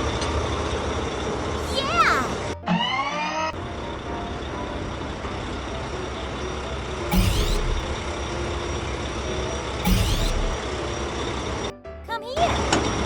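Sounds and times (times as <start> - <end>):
loud hissing bursts: 7.1 - 8.0, 9.8 - 10.6.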